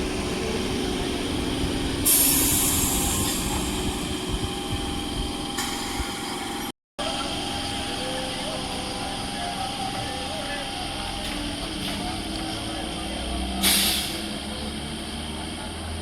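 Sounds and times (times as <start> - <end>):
train wheels rumbling on rail: 0.0 - 16.0
burst of hiss: 13.6 - 14.2.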